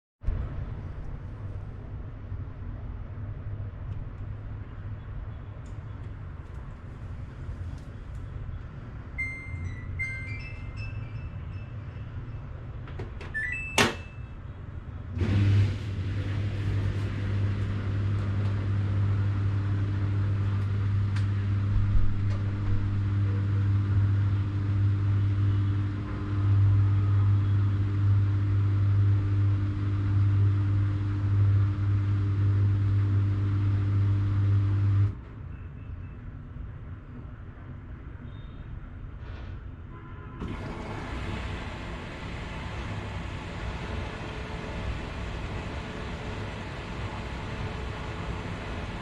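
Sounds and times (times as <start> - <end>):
washing machine humming and hissing: 6.2 - 35.2, 40.4 - 49.0
short electronic beeps: 9.1 - 12.6, 35.5 - 36.3.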